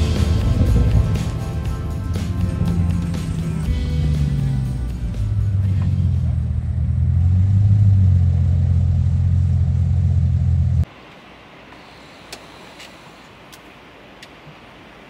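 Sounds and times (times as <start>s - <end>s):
vehicle engine low rumble: 0.0s - 10.9s
faint clicks: 11.7s - 14.6s.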